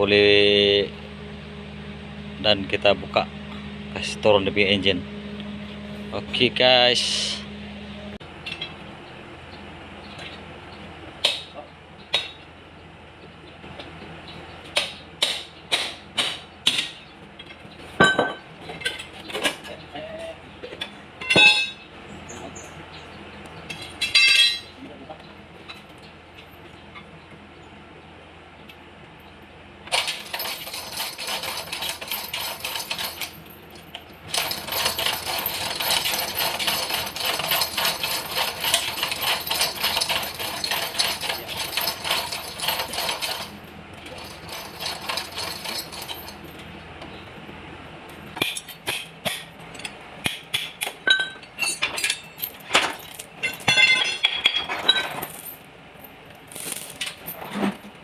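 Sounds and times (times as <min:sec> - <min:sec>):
power tool running: 0:00.0 - 0:08.2
metal tools clinking and knocking: 0:17.4 - 0:19.8, 0:23.7 - 0:24.8, 0:29.9 - 0:46.6, 0:50.8 - 0:58.0.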